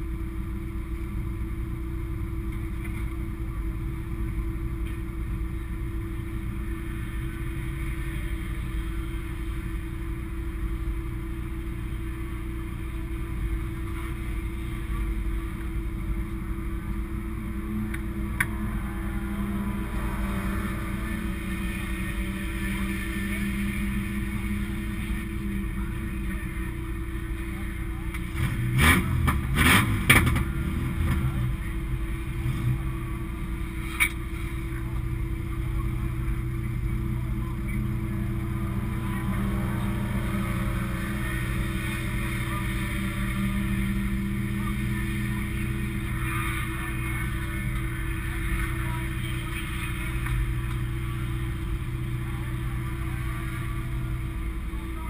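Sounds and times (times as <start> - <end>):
race car engine idling: 0.0 - 55.0.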